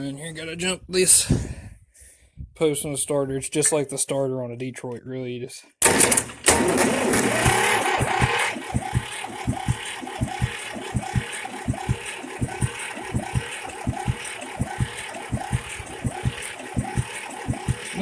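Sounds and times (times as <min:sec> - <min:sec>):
starter cranking diesel engine: 0:05.8 - 0:18.0
diesel engine lumpy idle: 0:07.3 - 0:18.0.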